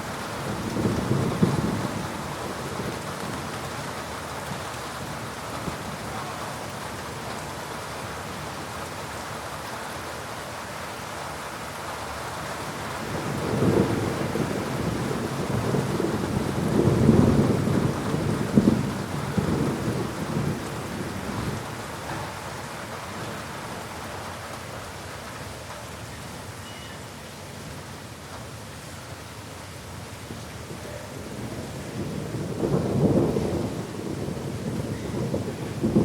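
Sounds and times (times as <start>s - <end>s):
steady rain falling: 0.0s - 36.0s
thunder rumbling: 0.3s - 3.6s, 13.0s - 23.4s, 31.2s - 36.0s.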